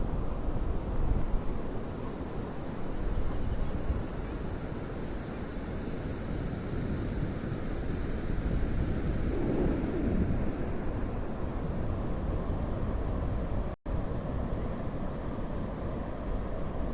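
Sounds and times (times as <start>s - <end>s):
wind buffeting the microphone: 0.0s - 14.1s
surf washing on a beach: 0.1s - 16.9s.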